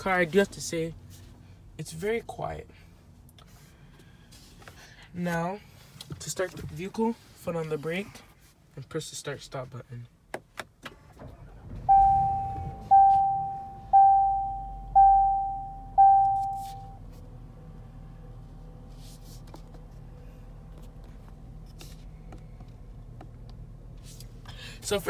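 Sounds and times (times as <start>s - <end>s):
car engine starting and idling: 10.5s - 25.0s
dashboard warning chime: 11.8s - 17.0s.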